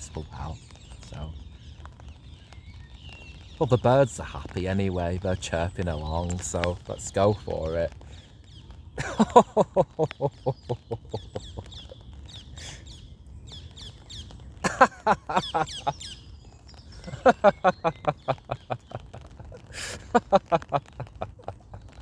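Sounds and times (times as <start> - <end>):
birds chirping: 0.0 - 22.0
man laughing heartily: 9.0 - 12.0, 14.6 - 16.1, 17.0 - 22.0
man drawing breath: 12.5 - 12.9, 19.7 - 20.1.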